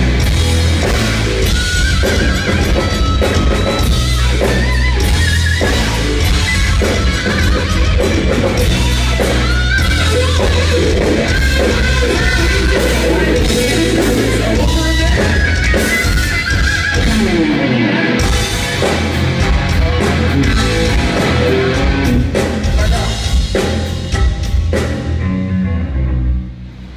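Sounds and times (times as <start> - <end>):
drum kit: 0.0 - 25.5
electric guitar: 0.0 - 26.9
person singing: 8.5 - 16.1.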